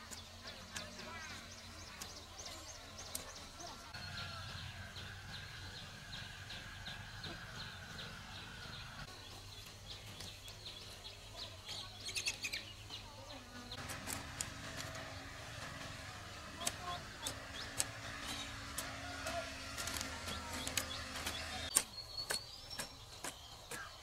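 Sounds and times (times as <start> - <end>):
birds chirping: 0.0 - 24.0
sharp clicks: 13.8 - 23.9.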